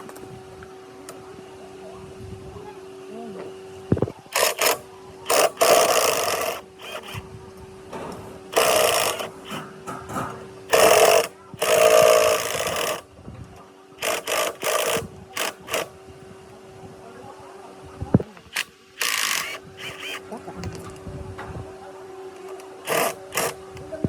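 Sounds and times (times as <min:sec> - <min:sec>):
steady mechanical hum: 0:00.0 - 0:24.0
power tool bursts: 0:04.3 - 0:07.2, 0:08.5 - 0:13.0, 0:14.0 - 0:15.9, 0:18.5 - 0:20.2, 0:22.8 - 0:23.8.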